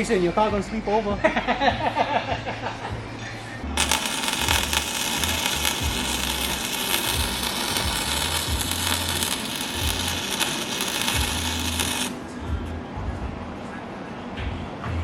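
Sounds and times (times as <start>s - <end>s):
arc welder crackling sizzle: 3.7s - 12.2s.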